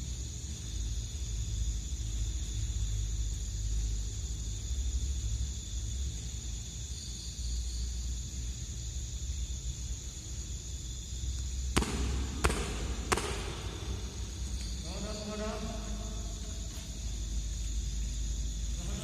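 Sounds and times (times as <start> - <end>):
night insects chirring: 0.0 - 19.0
sharp knocks: 11.8 - 15.0.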